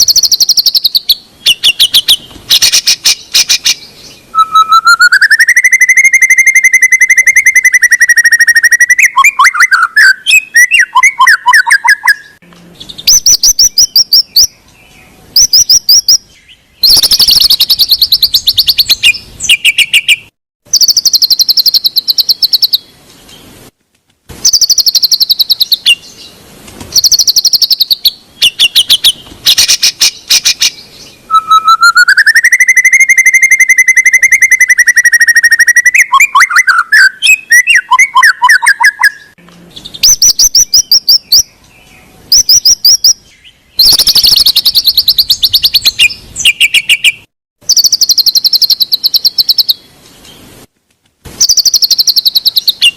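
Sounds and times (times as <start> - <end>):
bird trilling and chattering: 0.0 - 14.5, 15.4 - 22.8, 24.4 - 26.2, 26.9 - 41.5, 43.8 - 49.8
long wavering whistle: 4.4 - 12.2, 31.3 - 39.2.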